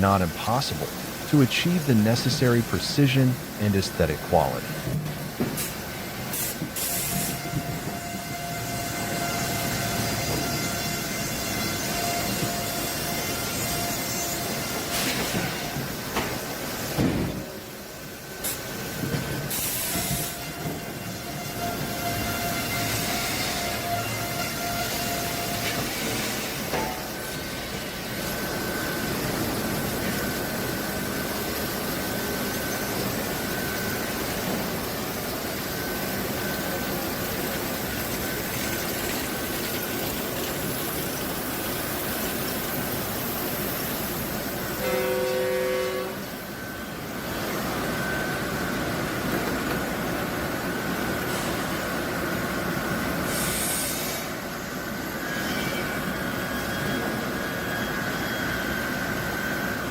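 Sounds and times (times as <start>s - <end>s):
horn-like tone: 7.2s - 10.4s, 44.8s - 46.3s.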